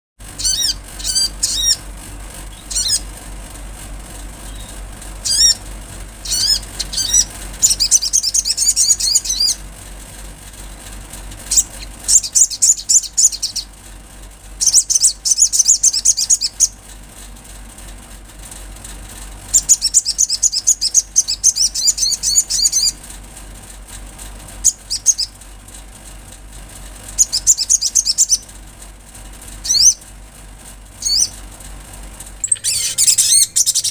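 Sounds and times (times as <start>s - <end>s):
bird chirps and trills: 0.2s - 3.2s, 4.4s - 9.7s, 11.4s - 13.8s, 14.6s - 16.9s, 19.5s - 23.0s, 24.6s - 25.4s, 27.1s - 28.5s, 29.5s - 30.1s, 31.0s - 31.4s, 32.4s - 33.9s
steady low hum: 0.2s - 33.9s.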